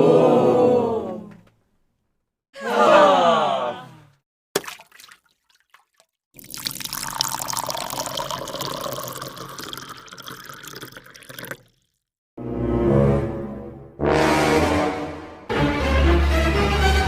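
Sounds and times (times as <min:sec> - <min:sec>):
water pouring: 0:04.6 - 0:12.1.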